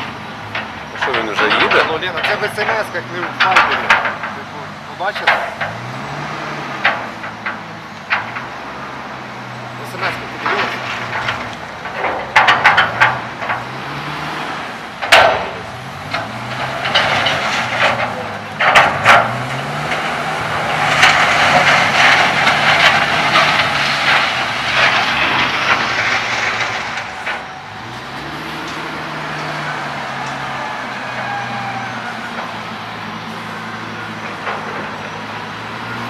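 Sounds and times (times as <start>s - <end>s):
truck engine running: 0.0s - 36.0s
sharp metal clanks: 9.9s - 13.8s, 15.0s - 27.9s.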